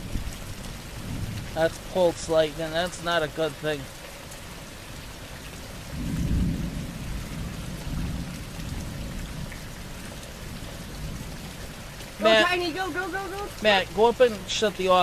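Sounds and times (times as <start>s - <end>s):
thunder rumbling: 0.0s - 3.2s, 5.7s - 14.3s
heavy rain hissing: 0.0s - 15.0s.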